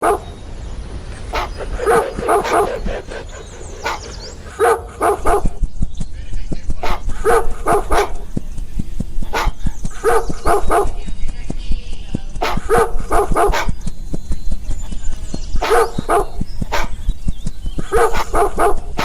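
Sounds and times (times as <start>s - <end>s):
dog barking: 0.0s - 0.3s, 1.2s - 5.6s, 6.7s - 8.4s, 9.2s - 11.1s, 12.2s - 13.9s, 14.9s - 17.1s, 17.8s - 19.0s.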